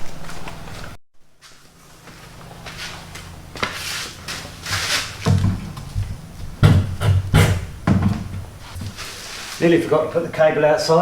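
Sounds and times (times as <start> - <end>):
low steady hum: 0.0 - 11.0
knocks and clunks on door: 5.2 - 9.0.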